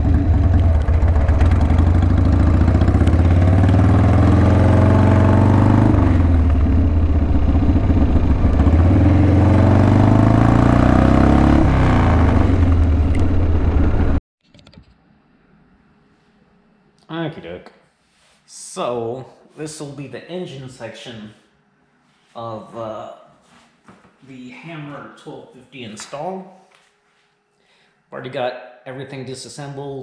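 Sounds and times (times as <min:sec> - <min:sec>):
motorcycle engine revving: 0:00.0 - 0:14.2.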